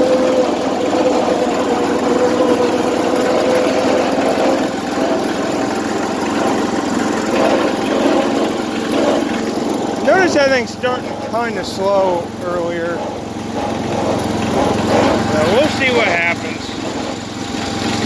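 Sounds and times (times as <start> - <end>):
riding mower engine running: 0.0 - 18.0.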